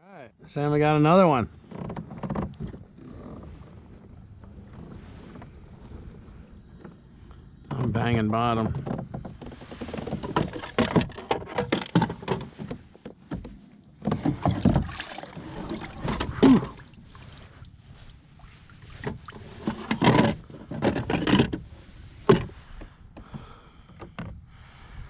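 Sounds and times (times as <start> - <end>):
boat knocks and clunks: 1.0 - 25.0
water splashing: 14.1 - 20.4.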